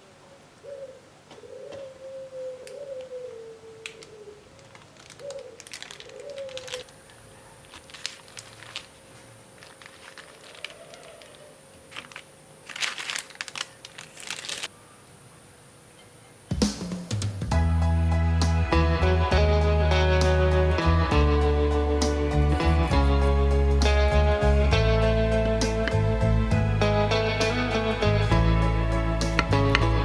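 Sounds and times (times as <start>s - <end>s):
dove cooing: 0.0s - 12.2s, 20.8s - 26.4s
wrapper crinkling and rustling: 4.5s - 14.7s, 22.2s - 24.3s.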